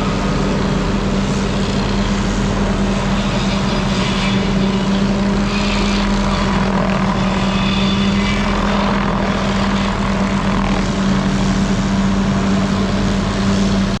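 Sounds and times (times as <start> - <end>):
small engine running at high speed: 0.0 - 14.0.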